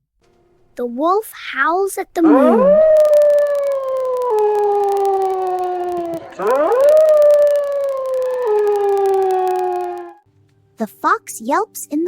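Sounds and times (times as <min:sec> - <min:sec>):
wolf howling: 0:02.2 - 0:10.2.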